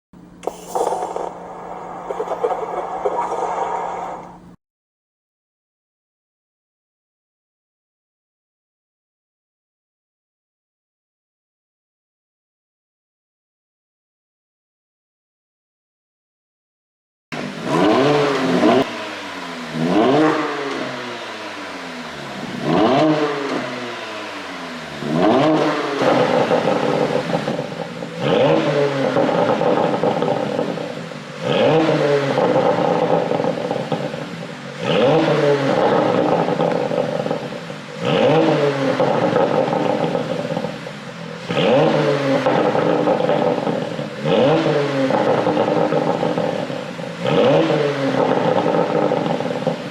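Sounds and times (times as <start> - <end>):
car engine revving: 17.4 - 49.9.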